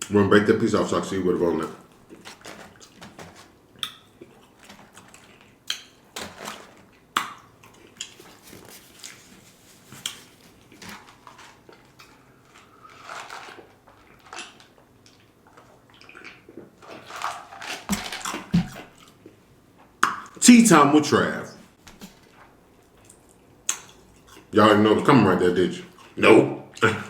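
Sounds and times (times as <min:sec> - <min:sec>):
chewing: 0:01.6 - 0:06.0, 0:06.6 - 0:19.4, 0:22.8 - 0:24.5, 0:25.8 - 0:27.0
fried food crackling and snapping: 0:01.9 - 0:09.2, 0:10.0 - 0:19.4.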